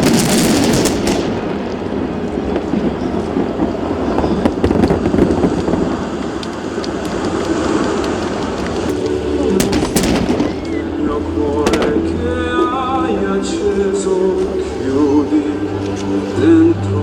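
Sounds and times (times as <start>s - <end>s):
sharp firework cracks: 0.0s - 13.1s
fireworks crackling: 0.0s - 16.3s
low rumbling booms: 9.6s - 14.8s.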